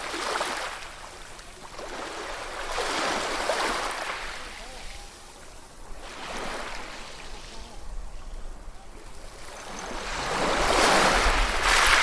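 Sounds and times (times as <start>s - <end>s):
ocean waves washing ashore: 0.0s - 12.0s.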